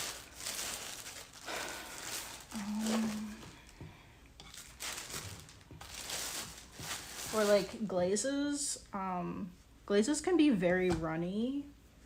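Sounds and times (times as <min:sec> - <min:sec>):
objects rustling and scraping: 0:00.0 - 0:07.9
person humming: 0:02.5 - 0:03.7.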